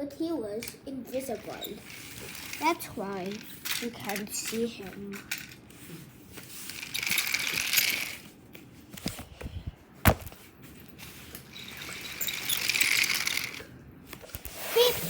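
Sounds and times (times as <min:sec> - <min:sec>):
toy track pieces clicking: 0:00.6 - 0:05.6, 0:06.6 - 0:08.3, 0:11.6 - 0:13.7
toy trains rattling and clattering: 0:00.6 - 0:08.3, 0:11.4 - 0:13.7.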